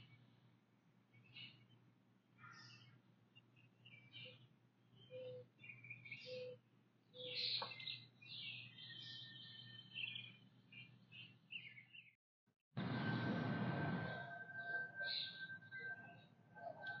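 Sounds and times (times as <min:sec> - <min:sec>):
wild birds chirping and singing: 0:00.0 - 0:00.5, 0:01.1 - 0:12.2, 0:12.9 - 0:17.0
steady low hum: 0:12.8 - 0:16.6.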